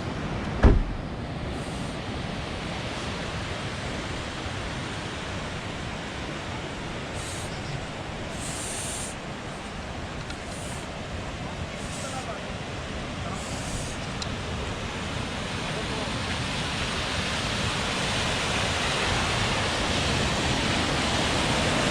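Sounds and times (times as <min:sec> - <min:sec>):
waterfall roaring: 0:00.0 - 0:21.9
brief thump: 0:00.5 - 0:01.0.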